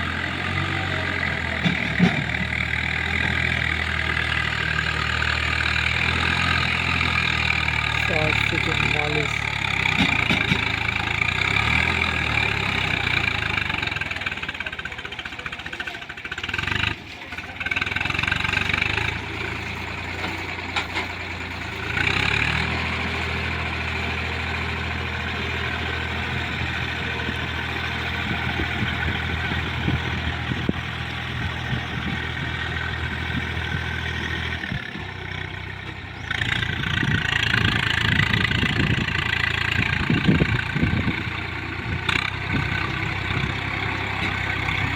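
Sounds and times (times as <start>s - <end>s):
rough engine noise: 0.0s - 44.9s
tractor diesel engine droning: 0.0s - 44.9s.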